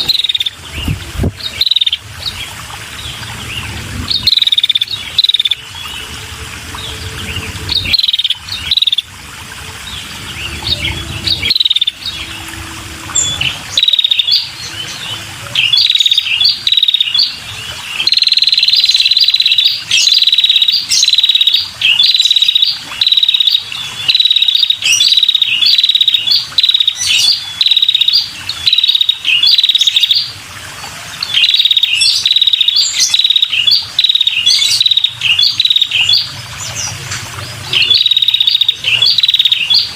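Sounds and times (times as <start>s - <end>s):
bird rapid trill: 10.3s - 12.4s, 13.2s - 15.0s, 37.7s - 39.9s.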